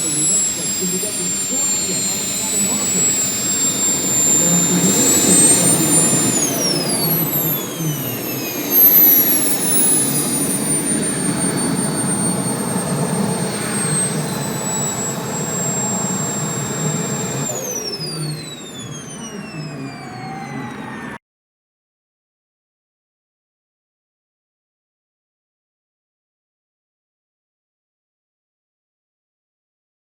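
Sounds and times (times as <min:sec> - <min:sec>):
steady engine rumble: 0:00.0 - 0:17.6
turbine engine whine: 0:00.0 - 0:21.2.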